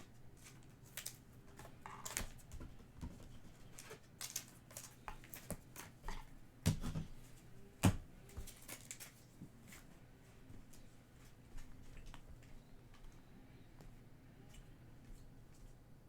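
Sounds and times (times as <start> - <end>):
trading cards clicking and rustling: 0.4 - 6.0.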